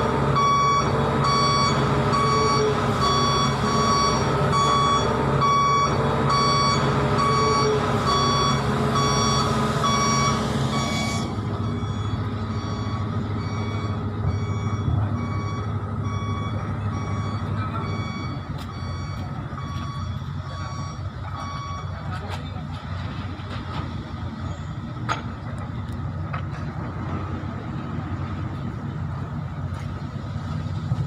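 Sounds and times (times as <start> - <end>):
reversing alarm beeping: 0.0 - 22.2
truck engine running: 0.0 - 31.0.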